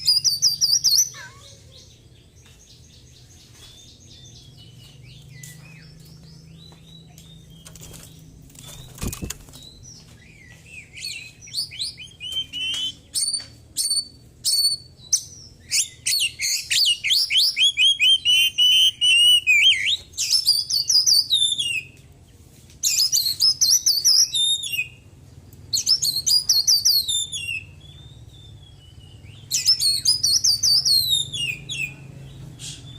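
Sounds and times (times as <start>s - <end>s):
bird singing varied whistles: 0.0s - 1.2s, 8.7s - 21.9s, 22.8s - 25.0s, 25.7s - 31.8s.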